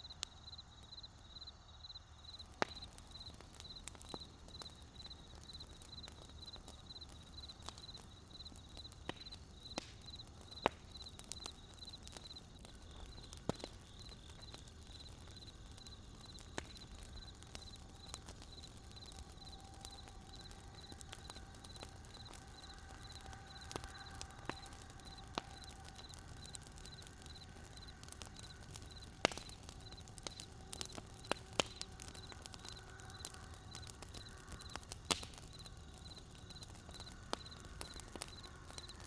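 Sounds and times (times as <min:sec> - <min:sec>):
campfire crackling and popping: 0:00.0 - 0:39.0.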